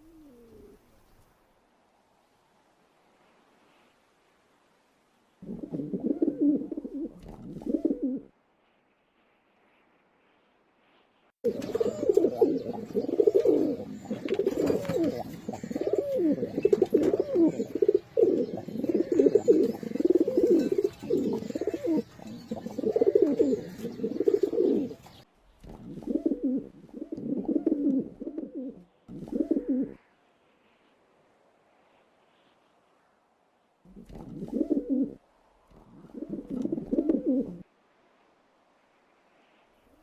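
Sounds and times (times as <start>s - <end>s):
pigeons cooing: 0.0s - 0.8s, 5.4s - 8.3s, 11.4s - 30.0s, 33.9s - 37.7s.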